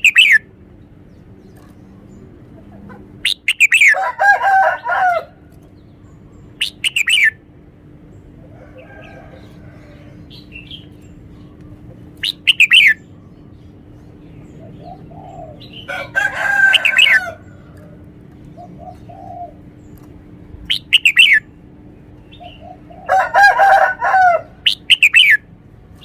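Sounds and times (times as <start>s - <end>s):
bulbul singing whistled phrases: 0.0s - 0.5s, 3.2s - 4.0s, 6.4s - 7.4s, 12.2s - 13.2s, 20.7s - 21.6s, 24.6s - 25.5s
faint bird chirps: 6.1s - 7.4s.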